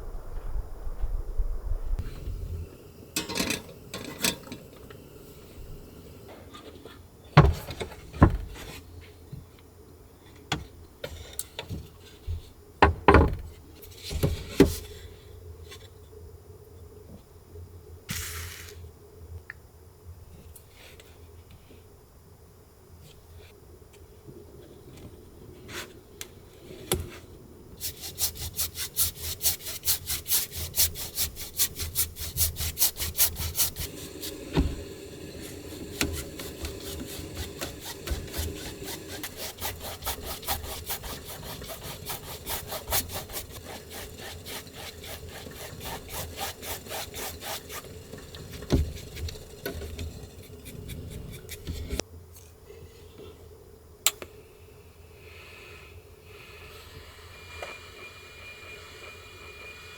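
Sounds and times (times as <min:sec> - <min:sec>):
hand saw cutting wood: 0:27.8 - 0:34.8, 0:35.4 - 0:52.0.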